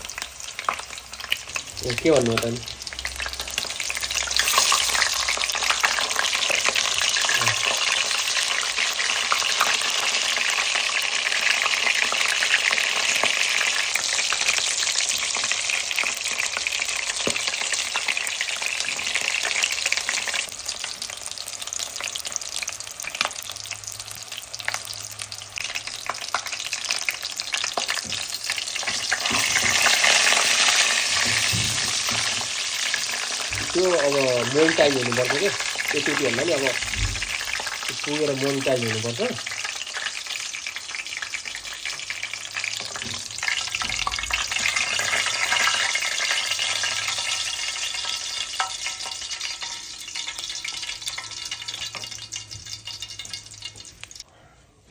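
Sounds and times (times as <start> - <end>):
hot oil sizzling in a pan: 0.0 - 54.3.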